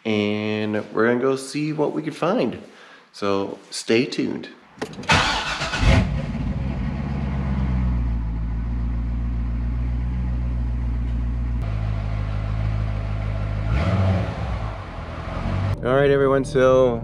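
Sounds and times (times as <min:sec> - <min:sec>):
car engine idling: 0:04.8 - 0:13.8.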